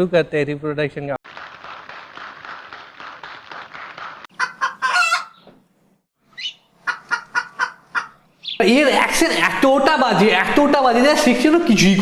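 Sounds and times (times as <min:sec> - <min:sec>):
chicken clucking: 0:04.4 - 0:05.6, 0:06.4 - 0:08.2
crowing call: 0:04.4 - 0:05.6, 0:06.3 - 0:08.7.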